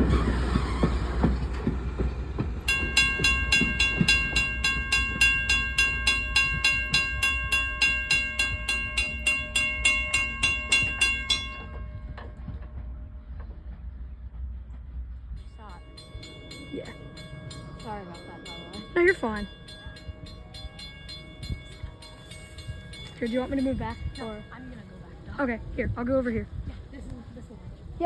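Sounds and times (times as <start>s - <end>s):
train clicking over rail joints: 0.0s - 26.7s
bell ringing fast: 2.7s - 12.5s, 15.4s - 25.0s.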